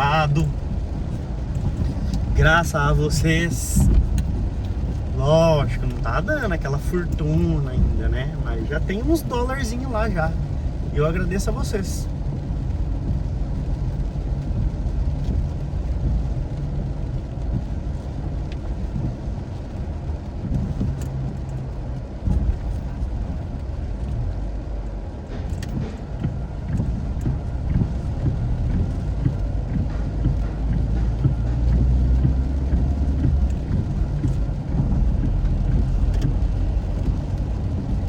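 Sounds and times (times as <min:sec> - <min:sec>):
car engine and road rumble: 0:00.0 - 0:38.0
faint ticks: 0:25.5 - 0:38.0.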